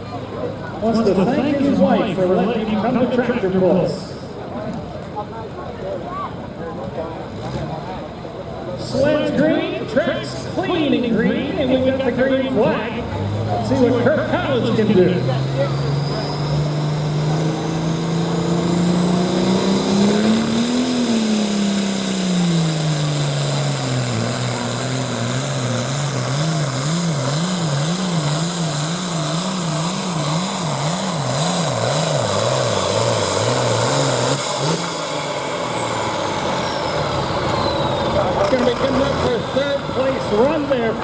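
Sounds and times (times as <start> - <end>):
tractor diesel engine under load: 0.0 - 41.0
high turbo whistle: 15.5 - 17.9, 30.0 - 38.4.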